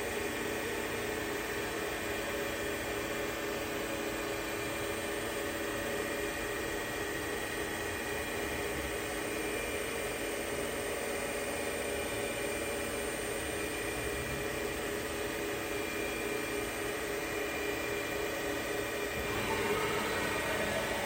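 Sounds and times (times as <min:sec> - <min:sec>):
milling machine whirring: 0:19.1 - 0:21.0.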